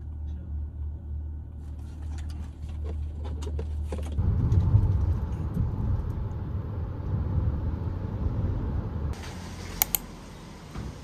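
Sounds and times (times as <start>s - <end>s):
low vehicle rumble: 4.1s - 11.0s
light clicks: 9.8s - 10.0s.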